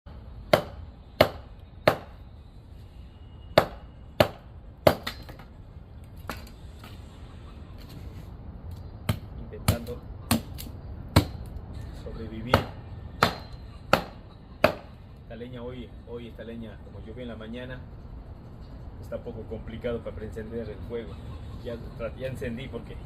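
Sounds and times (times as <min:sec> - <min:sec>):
axe chopping firewood: 0:00.5 - 0:02.2, 0:03.6 - 0:05.5, 0:09.0 - 0:11.5, 0:12.5 - 0:15.0.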